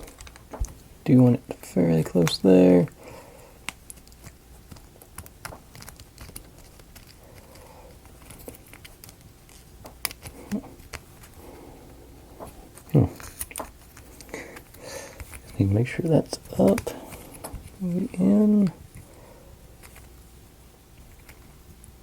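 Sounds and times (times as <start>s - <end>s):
wooden pieces clicking and tapping: 0.0s - 0.9s, 3.6s - 11.3s.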